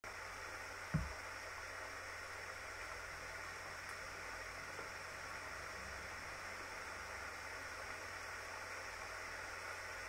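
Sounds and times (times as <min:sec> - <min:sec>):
light rain hiss: 0:00.0 - 0:10.0
low thump: 0:00.9 - 0:01.2.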